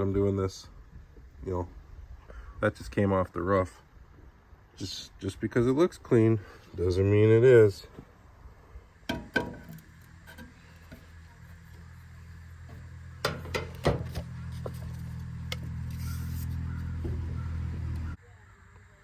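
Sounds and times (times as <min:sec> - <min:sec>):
steady low hum: 0:00.0 - 0:19.0
handling knocks and clicks: 0:13.2 - 0:15.7.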